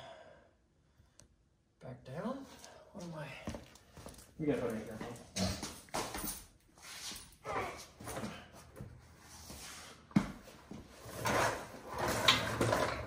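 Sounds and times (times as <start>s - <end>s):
clunks and scraping under car: 10.8s - 13.0s.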